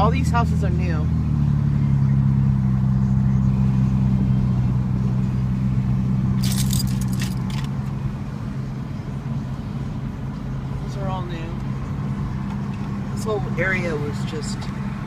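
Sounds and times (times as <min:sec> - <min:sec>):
car engine and road noise: 0:00.0 - 0:15.0
light metallic jingling: 0:06.4 - 0:07.8.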